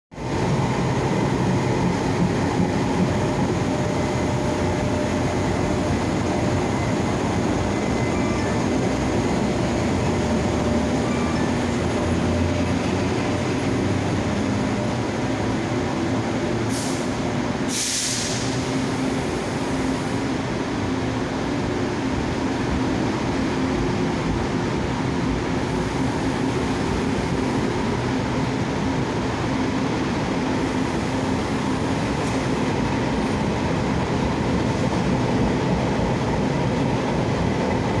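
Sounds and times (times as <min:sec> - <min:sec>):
train wheels rumbling on rail: 0:00.1 - 0:38.0
brief hisses: 0:16.8 - 0:18.6.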